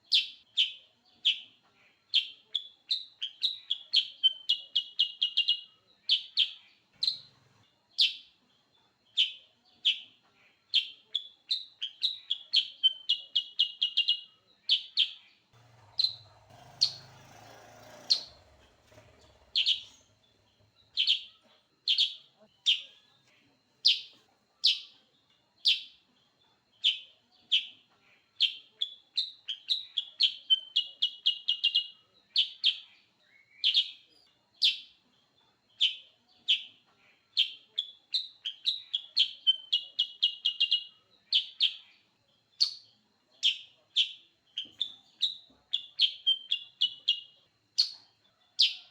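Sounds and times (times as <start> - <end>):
bulbul chirping: 6.2 - 7.3, 14.8 - 23.0, 23.8 - 25.0, 42.6 - 48.9.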